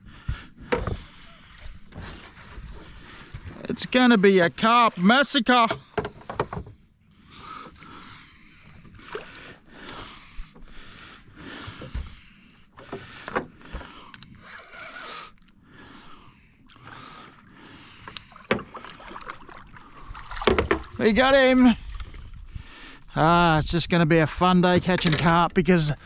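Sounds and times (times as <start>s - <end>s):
water sloshing and splashing: 0.6s - 15.4s, 16.7s - 22.6s.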